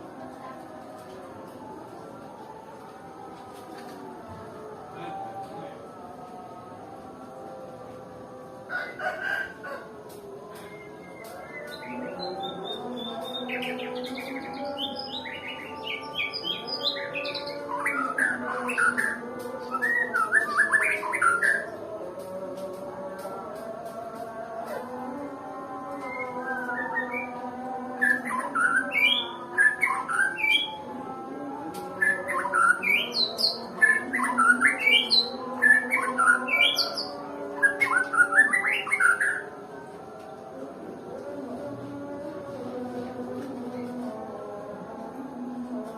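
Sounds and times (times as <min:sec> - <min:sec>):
background music: 0:00.0 - 0:45.9
bird singing chirps and whistles: 0:10.6 - 0:21.7, 0:28.0 - 0:30.8, 0:32.0 - 0:39.5.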